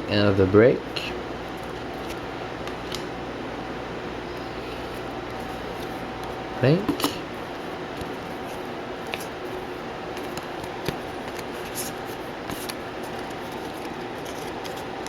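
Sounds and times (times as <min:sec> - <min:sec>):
cards clicking and rustling: 0:07.9 - 0:15.0.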